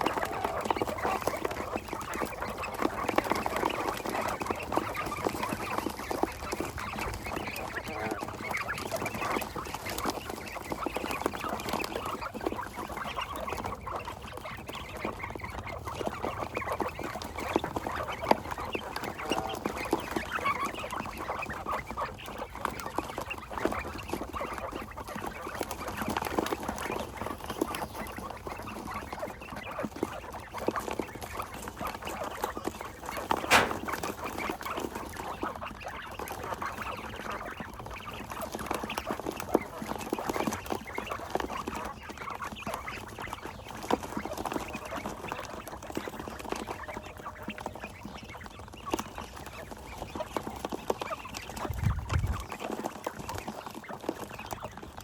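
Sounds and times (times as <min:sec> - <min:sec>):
quail calling and chirping: 0:00.0 - 0:55.0
sharp click: 0:33.4 - 0:34.0.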